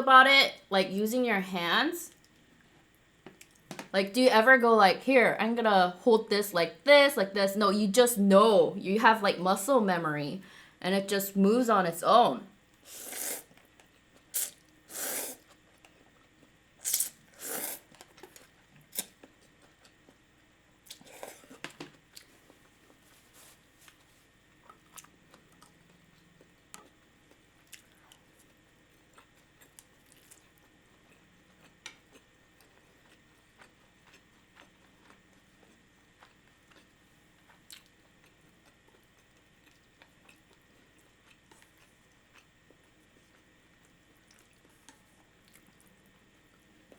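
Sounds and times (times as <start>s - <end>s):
noodle slurping: 12.9s - 13.5s, 14.4s - 15.5s, 16.8s - 17.9s
chewing with mouth clicks: 23.8s - 46.9s.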